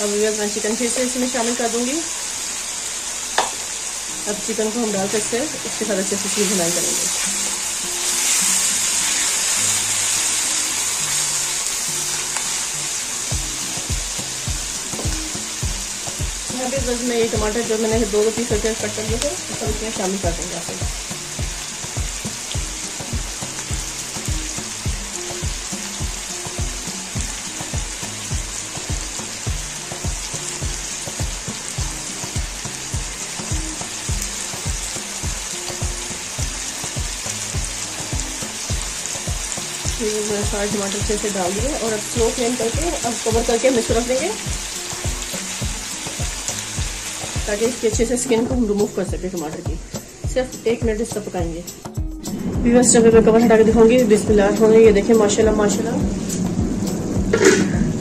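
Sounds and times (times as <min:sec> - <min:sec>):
chicken sizzling in oil: 0:00.0 - 0:50.4
music with thumping beat: 0:13.3 - 0:58.0.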